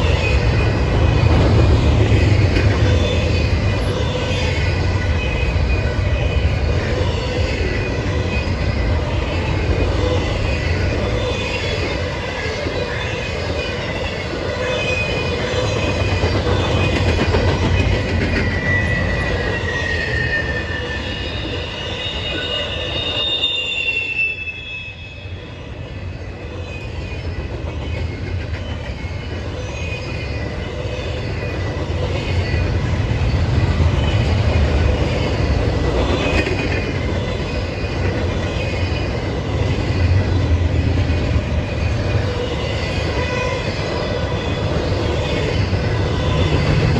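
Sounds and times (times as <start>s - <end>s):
train wheels rumbling on rails: 0.0s - 46.9s
wheel squeal: 10.0s - 25.6s.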